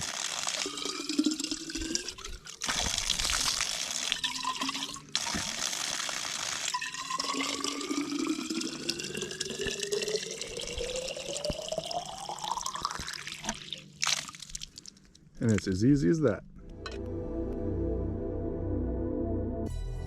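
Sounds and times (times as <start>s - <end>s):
water filling a container: 0.0s - 15.8s.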